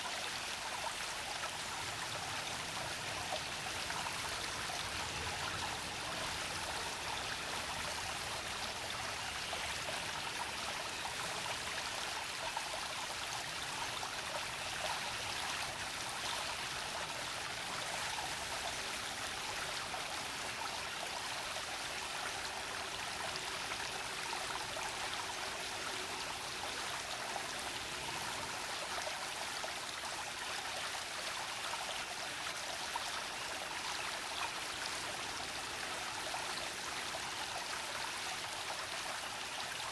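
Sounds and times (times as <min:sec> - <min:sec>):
brook babbling over rocks: 0:00.0 - 0:39.9.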